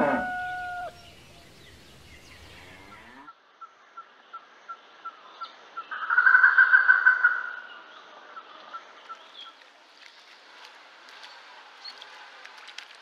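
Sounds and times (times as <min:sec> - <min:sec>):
loud bird call: 0:00.0 - 0:03.3.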